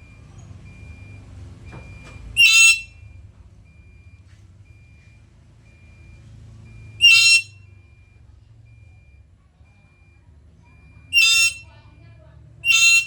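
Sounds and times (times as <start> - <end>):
parrot shrill calls: 2.4 - 2.9, 7.0 - 7.5, 11.1 - 11.6, 12.6 - 13.0.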